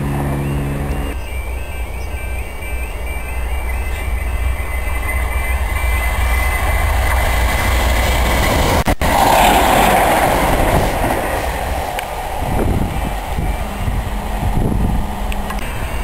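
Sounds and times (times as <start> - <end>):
passenger train passing at speed: 0.0 - 16.0
wind rumble on microphone: 8.3 - 16.0.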